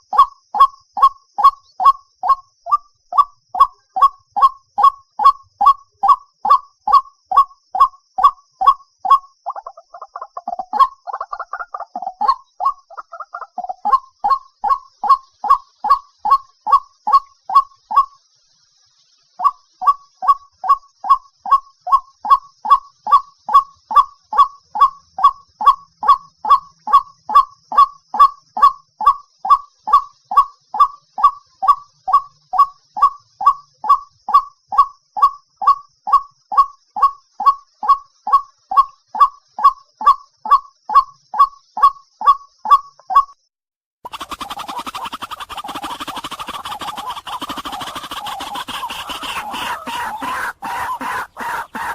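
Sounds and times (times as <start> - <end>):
bird honking call: 44.2 - 51.9.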